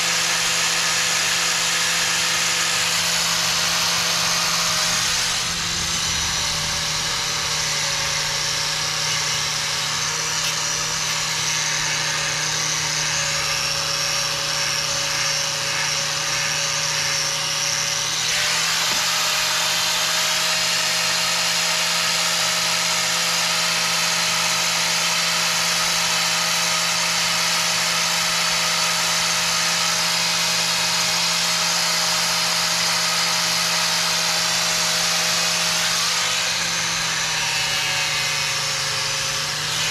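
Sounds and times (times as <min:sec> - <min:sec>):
angle grinder wire brush scrubbing: 0:32.7 - 0:39.9.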